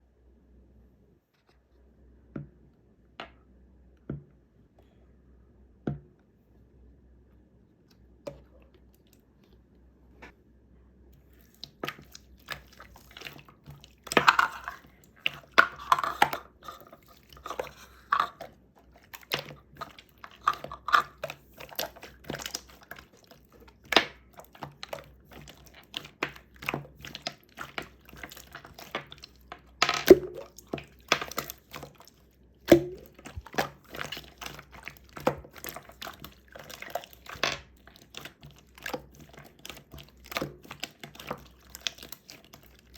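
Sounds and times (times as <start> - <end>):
cups and containers clinking: 12.7 - 23.0.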